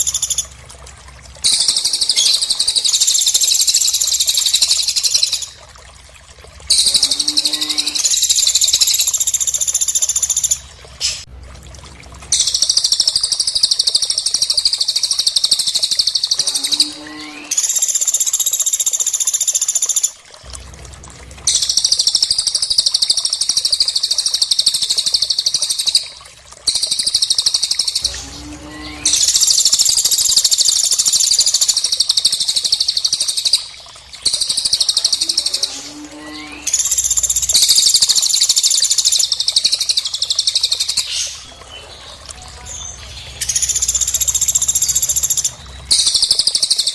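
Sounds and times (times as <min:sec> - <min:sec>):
high-pitched bird trills: 0:01.4 - 0:05.5, 0:06.7 - 0:09.1, 0:12.3 - 0:17.9.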